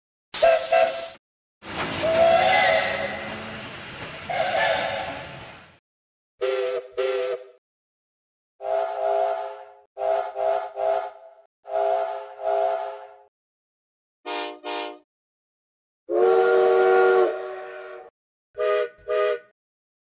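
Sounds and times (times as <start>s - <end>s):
steam locomotive chime whistle: 2.0s - 3.5s, 4.3s - 5.2s.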